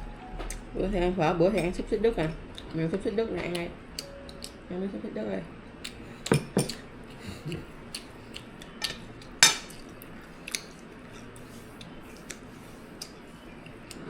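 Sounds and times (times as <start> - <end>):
utensils clinking against plates: 6.3 - 6.8, 8.7 - 10.0.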